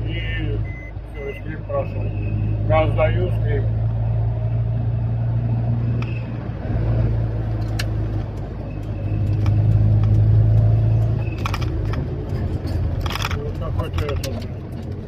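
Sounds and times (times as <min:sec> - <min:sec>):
car engine: 0:00.0 - 0:15.0
road noise: 0:00.0 - 0:15.0
clicks and rattles: 0:07.6 - 0:15.0.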